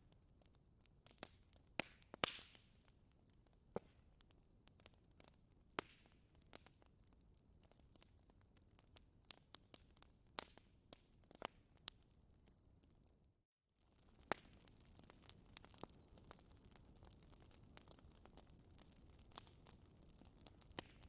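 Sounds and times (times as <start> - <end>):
wood fire crackling: 0.0 - 13.0, 13.8 - 21.0.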